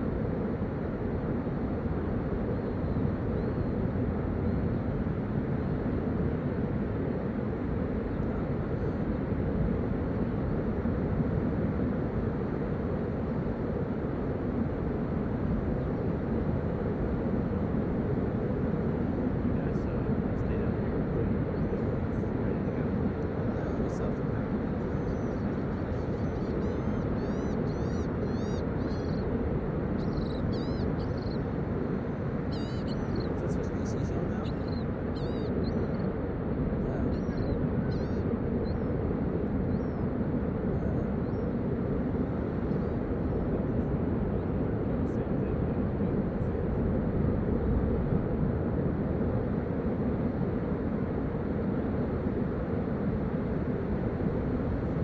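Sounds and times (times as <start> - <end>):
bird chirping: 24.8 - 29.2, 30.0 - 31.5, 32.5 - 36.1, 37.2 - 38.8.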